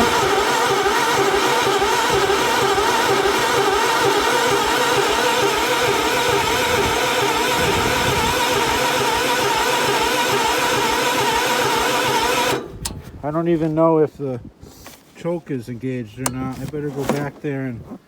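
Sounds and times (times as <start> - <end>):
electric starter cranking engine: 0.0 - 13.0.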